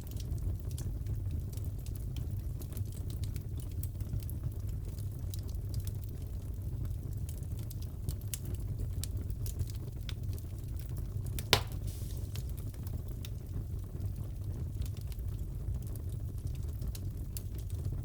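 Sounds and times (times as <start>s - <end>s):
wood fire crackling: 0.0s - 18.0s
loud pop from fire: 11.4s - 12.8s.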